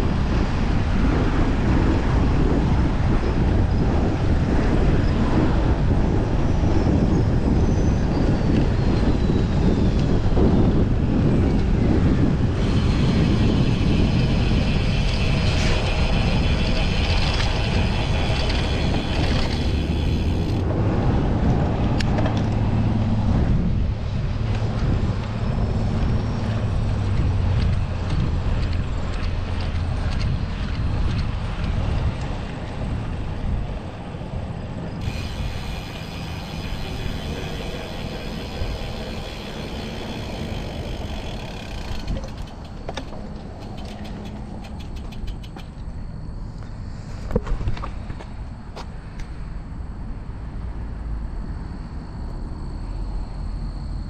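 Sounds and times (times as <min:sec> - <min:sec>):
bicycle tyre noise: 0:00.0 - 0:48.9
wind rumbling on microphone: 0:00.0 - 0:54.0
fast even ticking: 0:43.5 - 0:45.8.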